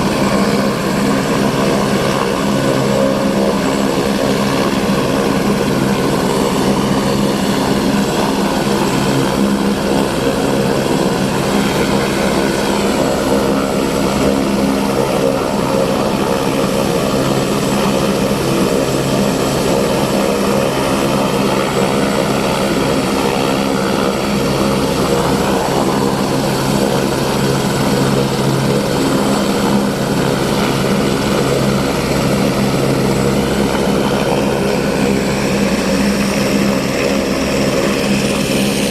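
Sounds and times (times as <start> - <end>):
helicopter drone: 0.0 - 38.9.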